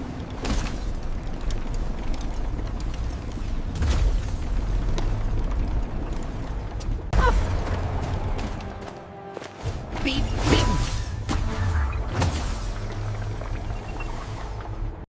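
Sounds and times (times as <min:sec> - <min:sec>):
continuous deep rumble: 0:00.0 - 0:09.2.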